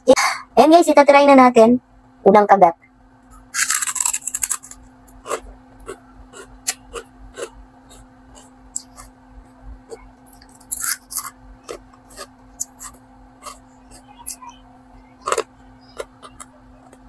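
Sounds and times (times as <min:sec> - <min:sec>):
crisp pork rinds crunching: 0:03.6 - 0:09.1, 0:10.3 - 0:14.0.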